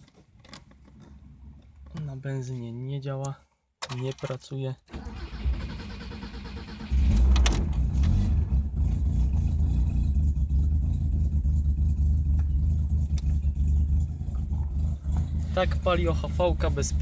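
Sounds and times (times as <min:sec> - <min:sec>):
car engine starting and running: 0:04.9 - 0:17.0.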